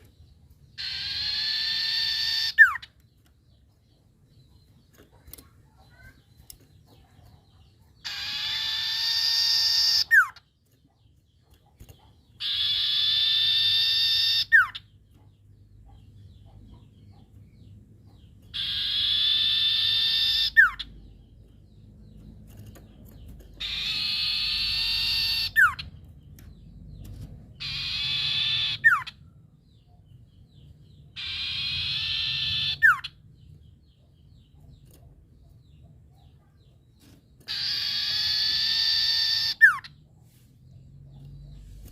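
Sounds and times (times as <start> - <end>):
bird harsh raspy calls: 0.7 - 3.0, 5.2 - 10.5, 11.9 - 15.0, 15.9 - 21.4, 23.1 - 26.0, 27.5 - 33.2, 35.6 - 40.0.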